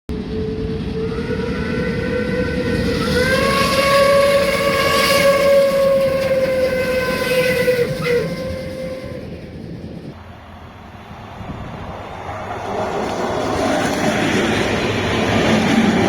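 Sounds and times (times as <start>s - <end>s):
passing train rumble: 0.1s - 16.0s
train horn blast: 0.9s - 9.8s.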